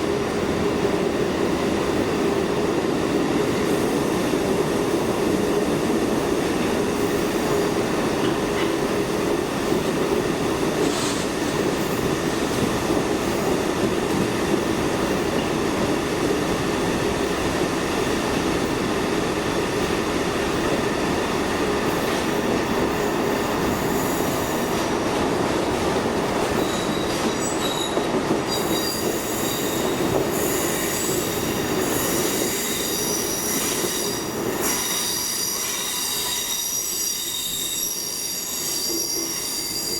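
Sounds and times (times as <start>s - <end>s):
wheel squeal: 32.0s - 39.9s.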